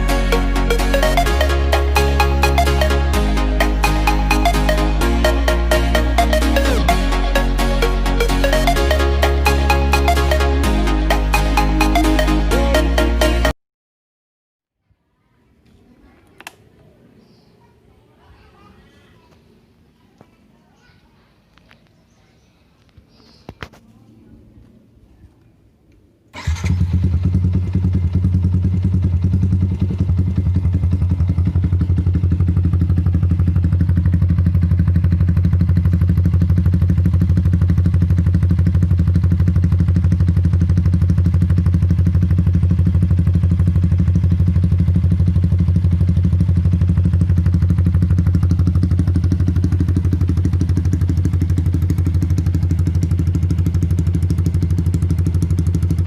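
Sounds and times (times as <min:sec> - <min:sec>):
motorcycle engine starting and idling: 0:00.0 - 0:13.5, 0:26.3 - 0:56.0.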